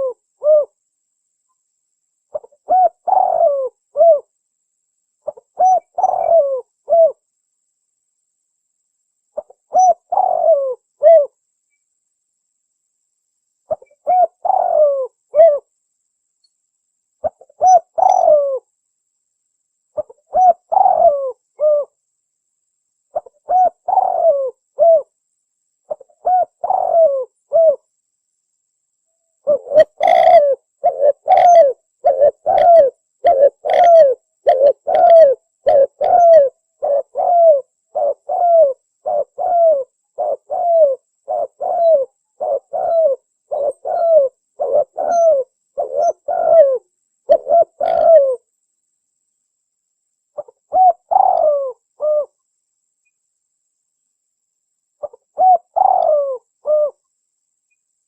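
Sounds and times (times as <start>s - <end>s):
dove cooing: 0.0s - 0.8s, 2.3s - 4.3s, 5.2s - 7.2s, 9.4s - 11.4s, 13.7s - 15.7s, 17.2s - 18.7s, 20.0s - 22.0s, 23.1s - 25.1s, 25.9s - 27.9s, 29.4s - 48.5s, 50.4s - 52.4s, 55.0s - 57.0s.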